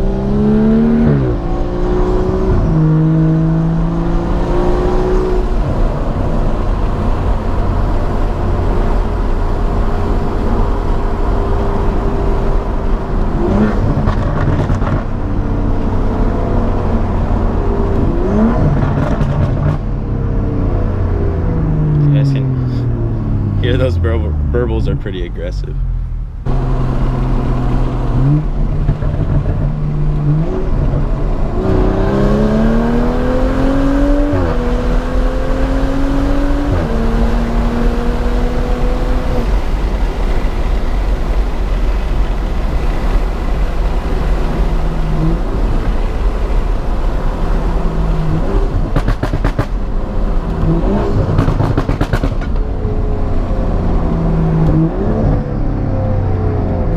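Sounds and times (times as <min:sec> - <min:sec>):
car exhaust pulling through gears: 0:00.0 - 0:56.9
exhaust crackles: 0:20.7 - 0:32.0.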